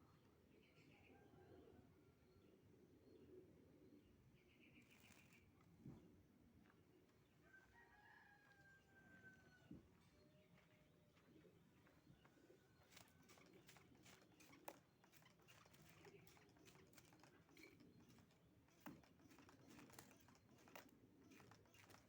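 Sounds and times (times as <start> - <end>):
bird clicking and pecking: 12.8 - 22.0.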